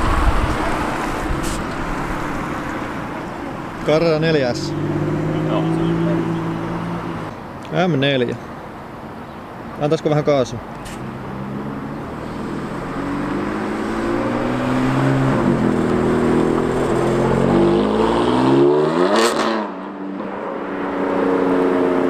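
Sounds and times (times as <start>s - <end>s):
car engine accelerating hard: 0.0s - 7.3s, 11.1s - 22.0s
car passing by: 10.8s - 19.9s.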